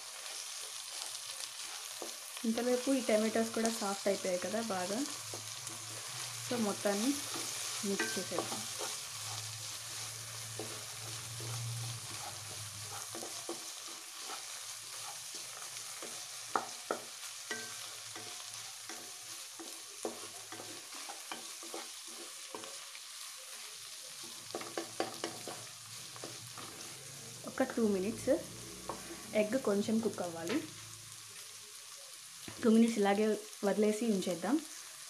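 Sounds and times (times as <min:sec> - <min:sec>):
spatula stirring and scraping: 0:00.0 - 0:02.4, 0:03.2 - 0:27.2, 0:28.0 - 0:29.3
eggs sizzling in oil: 0:00.0 - 0:35.0
spatula tapping on pan: 0:07.3 - 0:08.6, 0:16.0 - 0:21.9, 0:24.2 - 0:26.4.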